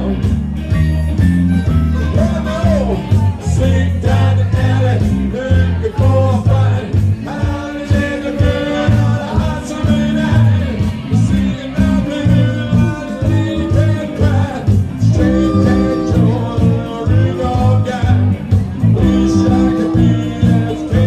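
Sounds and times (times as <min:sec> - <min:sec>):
bass line: 0:00.0 - 0:21.0
drums: 0:00.0 - 0:21.0
lead guitar: 0:00.0 - 0:21.0.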